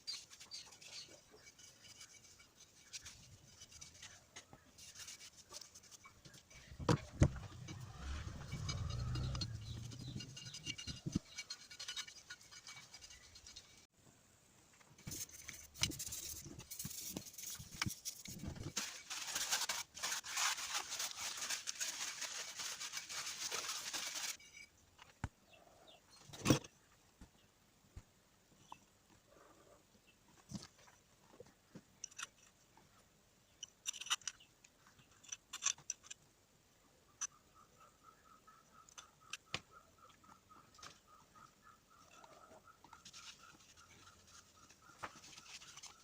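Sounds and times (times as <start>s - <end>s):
hand scrubbing metal part: 0.0s - 13.9s.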